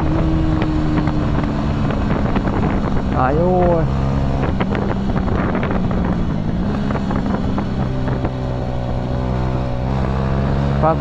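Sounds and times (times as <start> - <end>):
wind buffeting microphone: 0.0 - 10.8
motorcycle engine running: 0.0 - 11.0.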